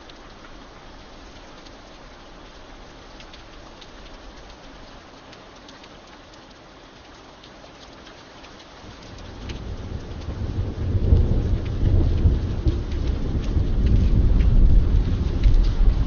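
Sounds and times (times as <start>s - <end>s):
steady rain: 0.0s - 16.0s
thunder rumbling: 8.8s - 16.0s.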